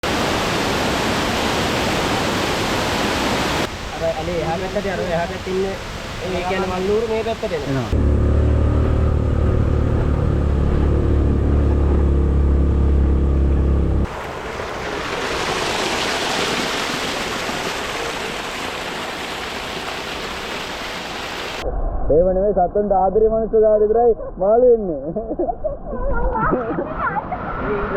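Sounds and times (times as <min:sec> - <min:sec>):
flowing water: 0:00.0 - 0:12.9, 0:14.0 - 0:21.6
low engine-like drone: 0:07.9 - 0:14.8.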